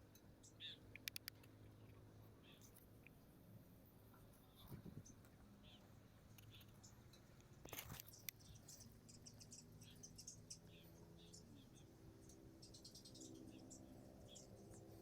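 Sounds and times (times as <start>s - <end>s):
rustle: 0.0s - 15.0s
sharp clicks: 0.9s - 1.6s.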